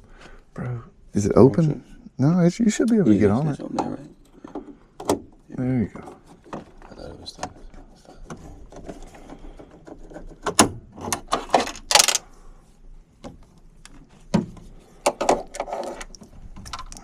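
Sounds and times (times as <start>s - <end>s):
tools clicking and knocking: 8.3s - 12.2s.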